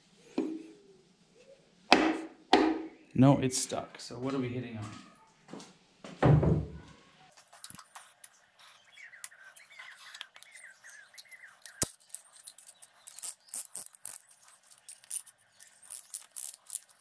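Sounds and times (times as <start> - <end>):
bird chirping: 8.6 - 16.7
metal parts clicking and knocking: 11.8 - 17.0.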